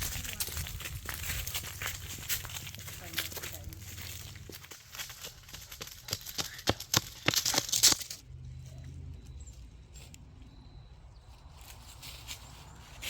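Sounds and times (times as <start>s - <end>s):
footsteps crunching dry leaves: 0.0s - 8.2s, 11.2s - 13.0s.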